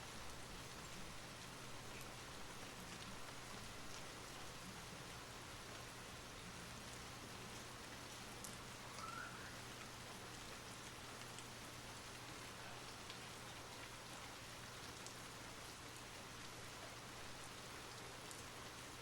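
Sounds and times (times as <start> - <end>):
soft rain falling: 0.0 - 19.0
raindrop ticks: 0.1 - 16.5, 17.4 - 18.8
faint whistle-like tone: 8.9 - 9.6.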